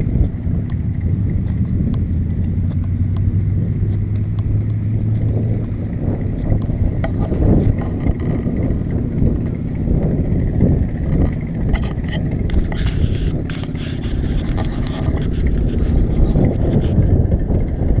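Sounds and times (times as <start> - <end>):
car engine running: 0.0 - 18.0
clicks and rattles: 6.4 - 9.7, 10.8 - 17.7.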